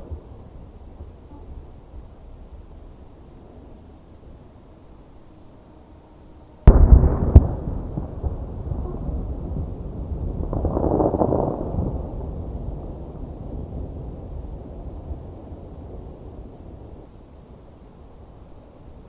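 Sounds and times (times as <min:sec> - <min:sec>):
firework shells bursting: 0:06.7 - 0:09.6
rumbling firework tail: 0:06.7 - 0:17.7.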